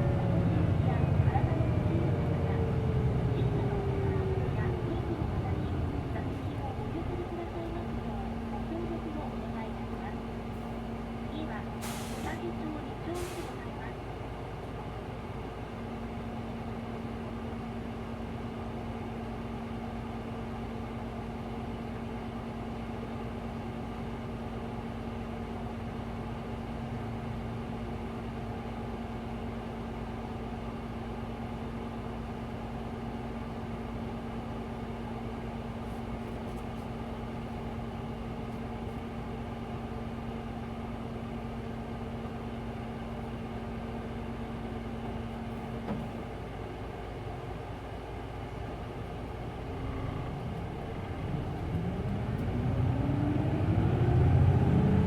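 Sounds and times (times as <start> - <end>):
bus engine and road noise: 0.0 - 55.0.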